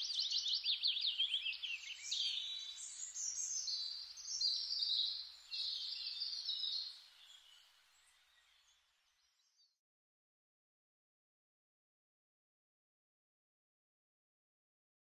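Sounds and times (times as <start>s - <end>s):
songbirds chirping and trilling: 0.0s - 9.8s.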